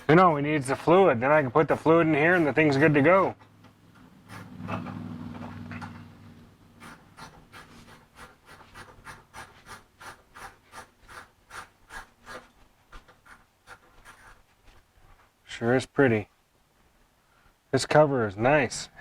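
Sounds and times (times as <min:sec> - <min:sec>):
rhythmic rubbing strokes: 0:00.0 - 0:03.3, 0:04.2 - 0:05.0, 0:06.7 - 0:14.8
low hum: 0:02.9 - 0:08.2.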